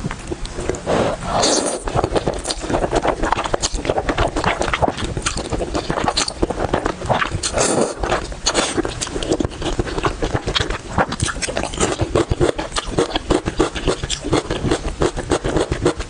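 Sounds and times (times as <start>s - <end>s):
chewing and crunching: 0.0s - 16.0s.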